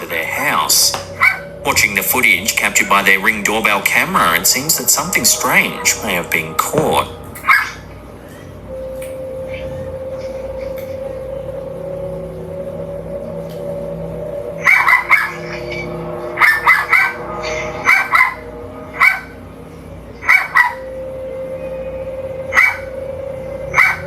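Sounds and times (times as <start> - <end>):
dogs barking: 1.1 - 1.6, 7.4 - 7.9, 14.6 - 19.4, 20.2 - 20.9, 22.5 - 23.0, 23.7 - 24.0.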